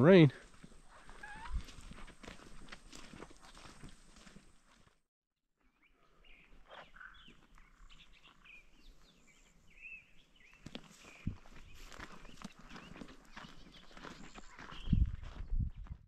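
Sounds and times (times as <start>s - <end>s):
footsteps on dirt trail: 0.1s - 5.0s, 6.3s - 16.0s
birds chirping: 5.7s - 15.9s.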